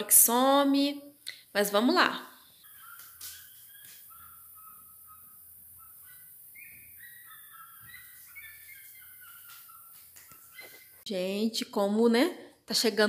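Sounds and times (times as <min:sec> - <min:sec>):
faint birds chirping: 0:02.3 - 0:11.1.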